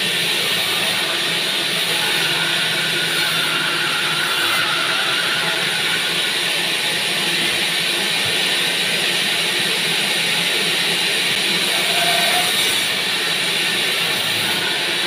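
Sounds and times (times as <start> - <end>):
bandsaw running: 0.0 - 15.0.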